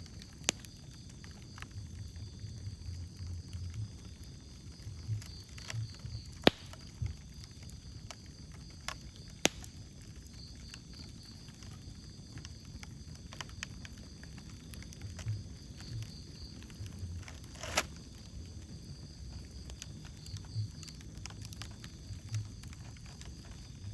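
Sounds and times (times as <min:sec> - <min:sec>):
low rumble of flame: 0:00.0 - 0:23.9
wood fire crackling: 0:00.0 - 0:23.9
sharp loud fire pops: 0:06.4 - 0:07.2, 0:09.4 - 0:10.0.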